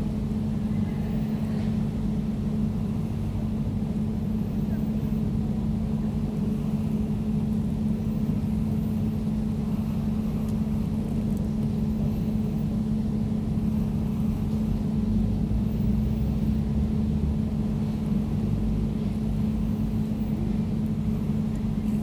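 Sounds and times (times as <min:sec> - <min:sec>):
air conditioner running: 0:00.0 - 0:22.0.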